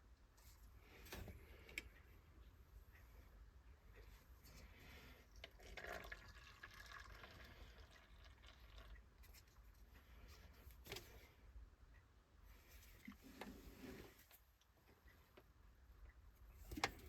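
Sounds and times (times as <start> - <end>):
faint clicks and handling noises: 0.1 - 5.6, 9.2 - 11.4, 12.5 - 17.0.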